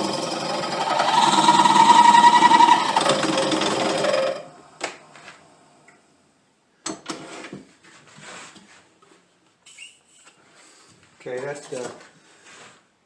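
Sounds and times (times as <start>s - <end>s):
power drill running: 0.0s - 4.5s.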